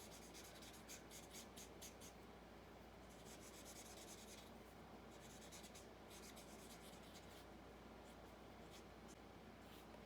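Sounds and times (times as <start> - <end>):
marker scratching on cardstock: 0.0 - 2.2, 3.1 - 4.5, 5.1 - 7.4.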